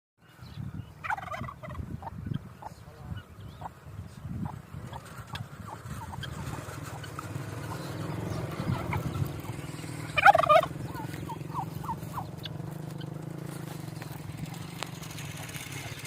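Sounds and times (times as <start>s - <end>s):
birds chirping: 0.2s - 16.0s
rapid warbling bird call: 4.4s - 16.0s.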